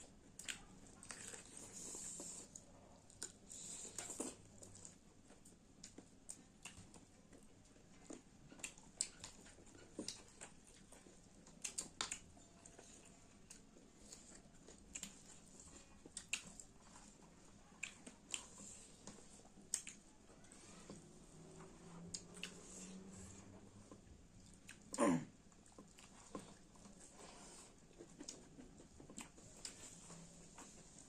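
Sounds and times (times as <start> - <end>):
chewing mouth smacks: 17.8 - 20.0.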